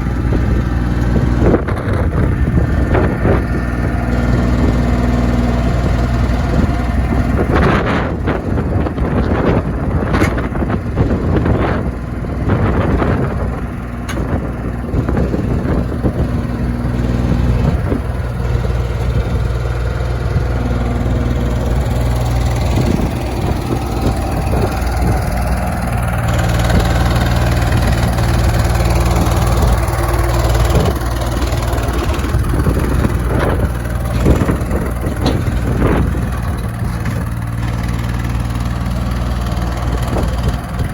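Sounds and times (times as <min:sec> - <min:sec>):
diesel tractor engine running: 0:00.0 - 0:40.9
knocks and rattles: 0:12.8 - 0:40.9.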